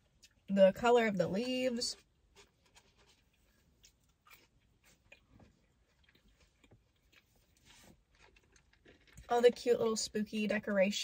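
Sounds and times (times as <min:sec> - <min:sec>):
close-up chewing: 0:01.4 - 0:09.7.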